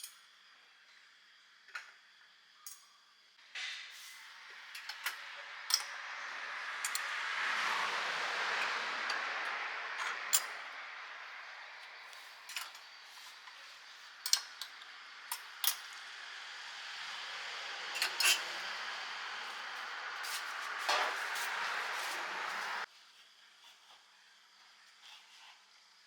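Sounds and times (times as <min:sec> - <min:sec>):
metal utensils clinking: 0:04.7 - 0:06.0, 0:10.0 - 0:10.6, 0:12.4 - 0:12.9, 0:14.2 - 0:16.0, 0:17.9 - 0:18.8.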